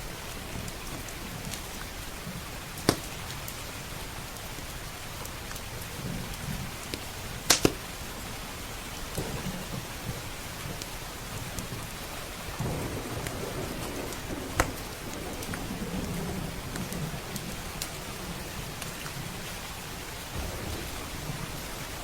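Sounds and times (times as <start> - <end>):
heavy rain: 0.0 - 22.0
wood fire crackling and popping: 2.6 - 3.6, 4.5 - 8.0, 9.1 - 19.2
distant thunder rolling: 12.5 - 19.4, 20.3 - 22.0.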